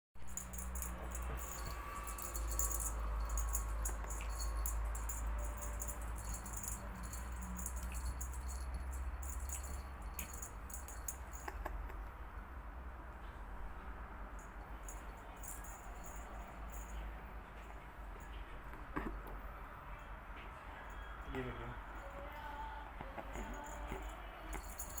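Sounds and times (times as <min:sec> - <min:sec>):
steady low hum: 0:00.3 - 0:11.6.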